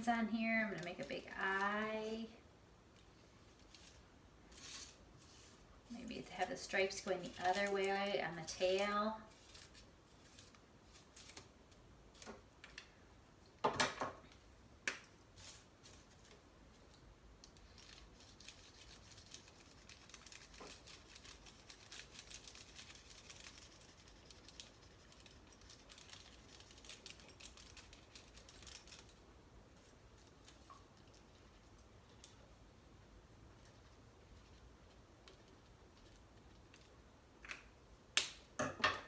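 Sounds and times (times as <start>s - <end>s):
marker scratching on foil: 3.7s - 11.4s.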